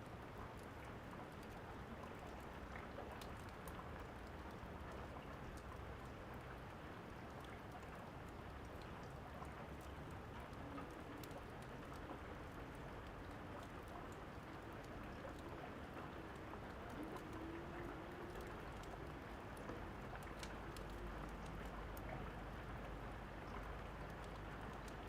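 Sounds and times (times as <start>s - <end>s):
wood fire crackling: 18.0s - 22.0s.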